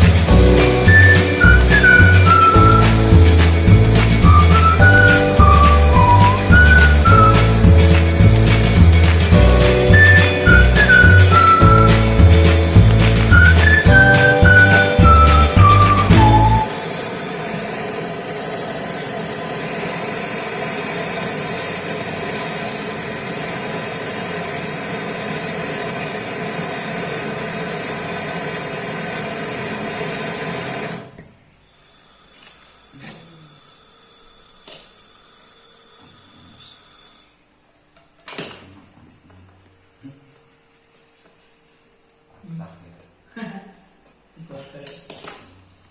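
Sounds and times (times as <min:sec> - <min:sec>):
machine running with hiss: 0:15.2 - 0:37.4.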